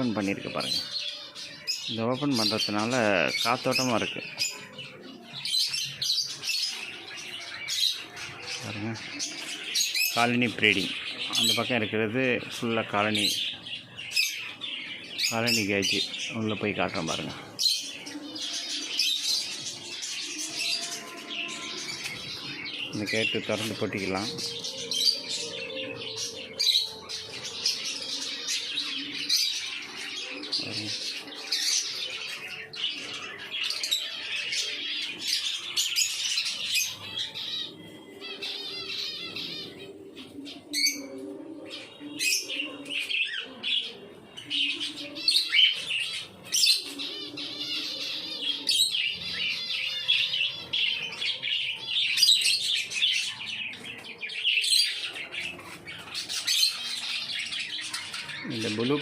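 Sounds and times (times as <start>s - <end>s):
birds chattering and chirping: 0.0s - 59.0s
bird squawks: 12.9s - 59.0s.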